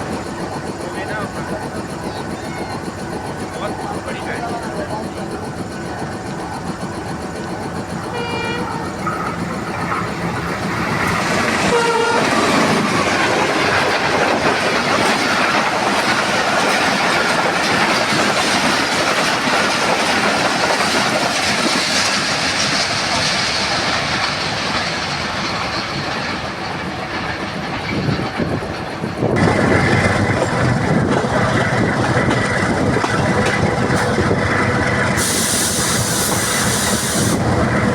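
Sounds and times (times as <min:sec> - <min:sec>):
train passing with wheel clatter: 0:00.0 - 0:37.9
train horn blasts: 0:08.1 - 0:09.0, 0:11.6 - 0:12.4.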